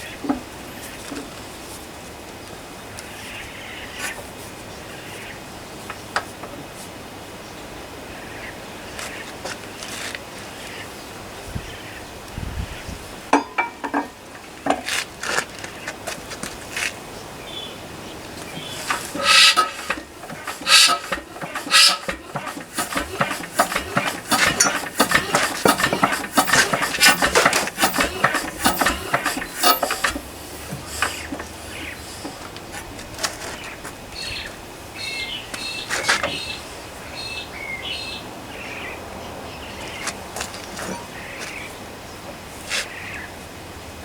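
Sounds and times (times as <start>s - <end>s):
birds chirping: 17.2s - 32.6s
rapid clatter of clicks: 18.3s - 33.7s.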